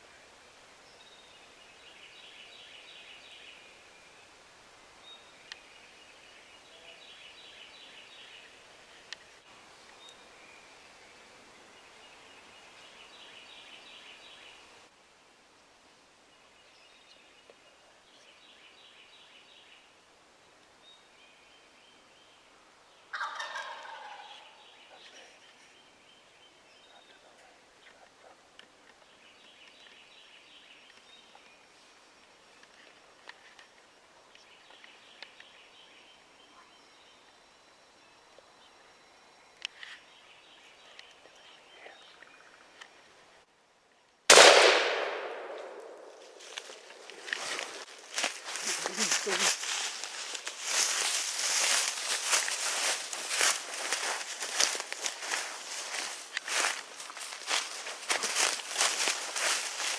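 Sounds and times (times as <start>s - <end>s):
turkey gobbling: 23.1s - 24.6s.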